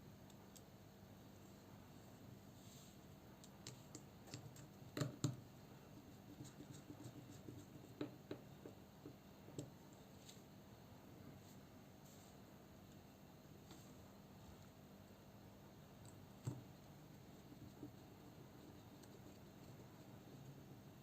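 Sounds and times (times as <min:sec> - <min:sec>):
light clicks and taps: 0:03.4 - 0:05.4, 0:16.0 - 0:16.7.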